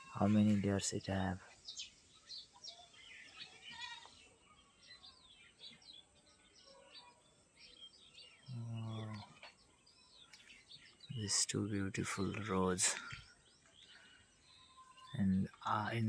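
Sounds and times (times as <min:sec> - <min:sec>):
small birds chirping: 0:00.0 - 0:16.0
low hummed voice: 0:08.5 - 0:09.5.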